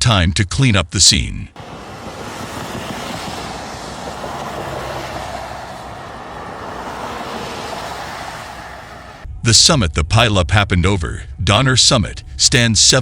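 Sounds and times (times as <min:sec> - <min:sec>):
heavy vehicle rumble and hiss: 0:01.6 - 0:09.2.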